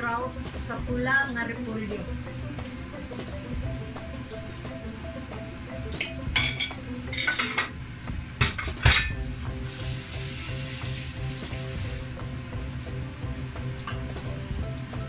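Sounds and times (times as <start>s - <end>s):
light background music: 0.0s - 15.0s
food sizzling in pot: 6.5s - 15.0s.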